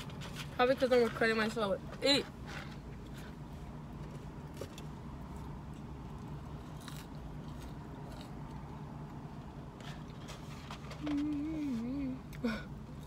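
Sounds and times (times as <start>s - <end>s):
person chewing fries: 2.8s - 11.5s.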